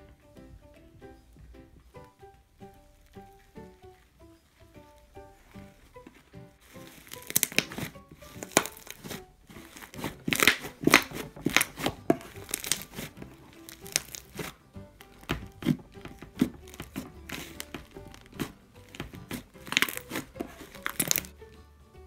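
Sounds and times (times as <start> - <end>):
soft background music: 0.0 - 22.0
slime popping and crackling: 6.6 - 21.4.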